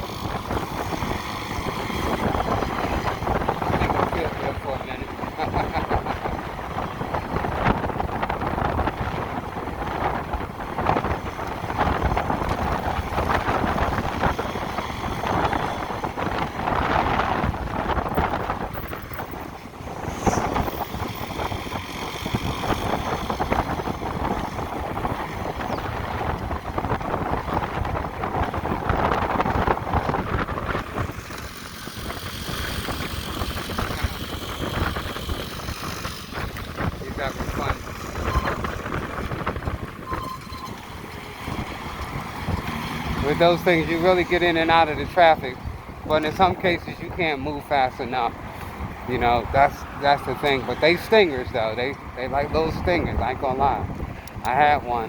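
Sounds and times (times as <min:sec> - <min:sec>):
road and traffic noise: 0:00.0 - 0:55.0
wind rushing over microphone: 0:00.0 - 0:55.0.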